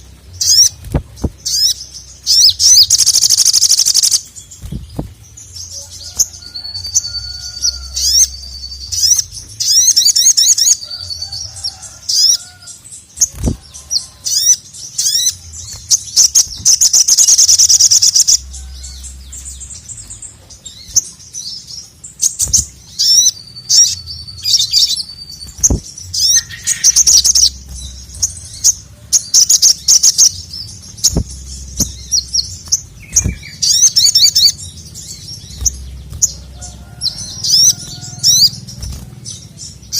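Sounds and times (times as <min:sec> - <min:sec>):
sunbird singing: 0:00.0 - 0:39.9
low rumble: 0:24.0 - 0:29.1.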